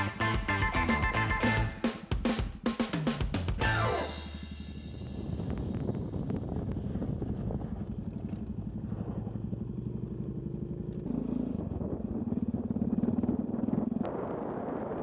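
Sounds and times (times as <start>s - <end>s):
motorcycle engine running: 3.5s - 14.1s.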